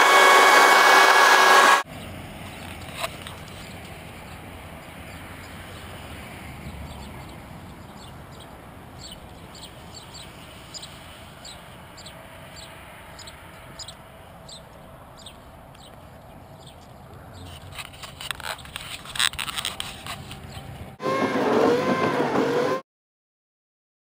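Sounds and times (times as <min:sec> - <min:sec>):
small birds chirping: 0:01.8 - 0:20.9.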